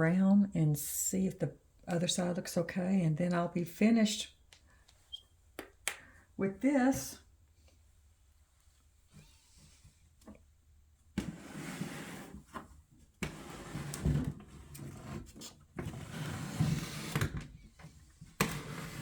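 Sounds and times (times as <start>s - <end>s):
wooden dollhouse scraping on table: 11.2s - 17.4s, 18.4s - 19.0s.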